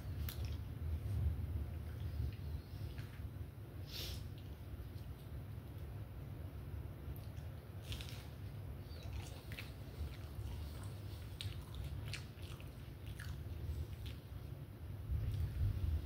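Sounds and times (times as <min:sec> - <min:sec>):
steady low hum: 0:00.0 - 0:16.0
person chewing food: 0:07.1 - 0:14.5.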